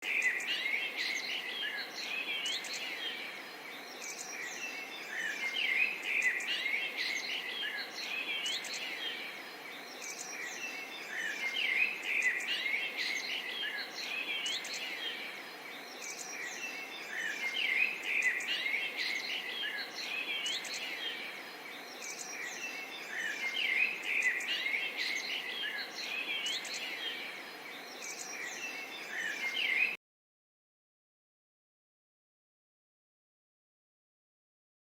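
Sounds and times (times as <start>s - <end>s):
birds singing and chirping: 0.0s - 30.0s
faint steady hiss: 0.0s - 30.0s.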